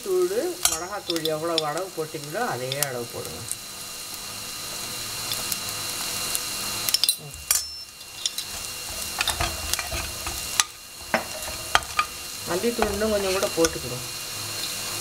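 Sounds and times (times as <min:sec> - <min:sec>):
onions sizzling in oil: 0:00.0 - 0:15.0
spoon scraping and clinking pan: 0:06.9 - 0:12.2.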